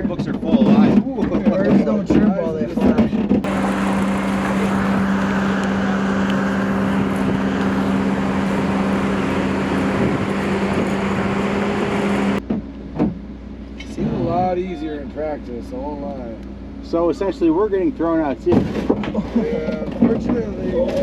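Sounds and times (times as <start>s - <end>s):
car engine running: 3.4s - 12.4s.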